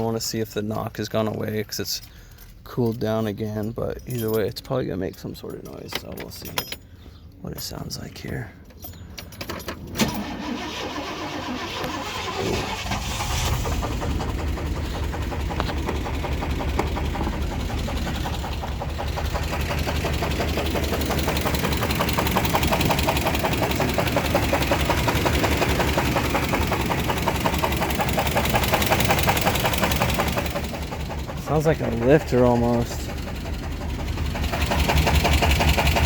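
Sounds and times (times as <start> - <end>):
engine starting: 9.3 - 15.6, 34.4 - 36.0
engine knocking: 12.7 - 36.0.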